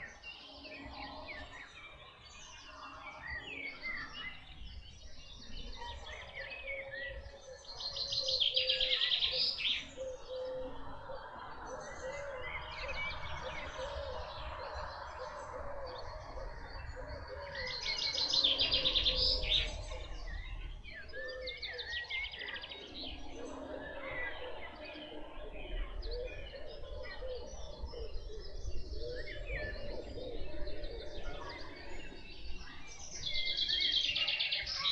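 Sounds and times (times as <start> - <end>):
birds chirping and whistling: 7.6 - 34.9.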